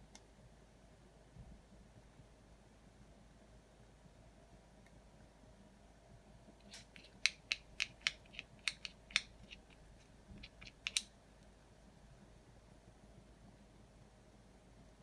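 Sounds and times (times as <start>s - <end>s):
small hard objects clicking: 6.6s - 11.1s.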